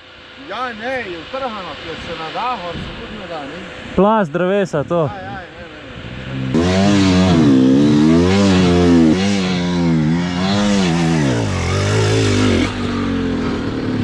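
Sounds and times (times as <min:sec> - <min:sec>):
dirt bike engine revving: 0:06.0 - 0:14.0.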